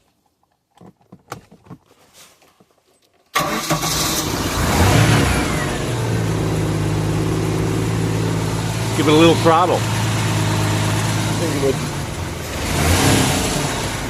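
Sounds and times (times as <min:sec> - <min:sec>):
boat engine starting and idling: 0:03.3 - 0:14.0.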